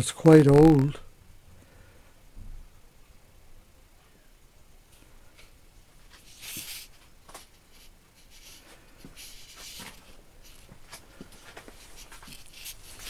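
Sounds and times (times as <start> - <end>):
faint scraping and rustling: 4.9 - 13.0.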